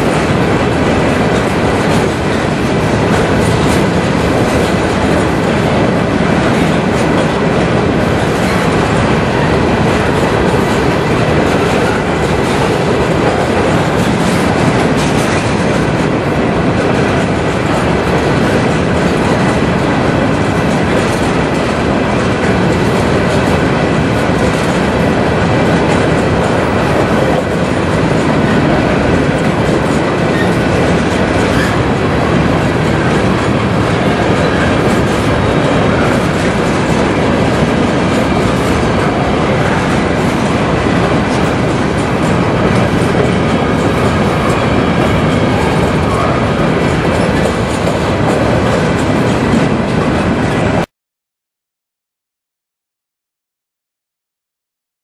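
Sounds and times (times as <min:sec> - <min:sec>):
wheels clacking over rails: 0:00.0 - 0:50.8
freight train rumbling past: 0:00.0 - 0:50.9.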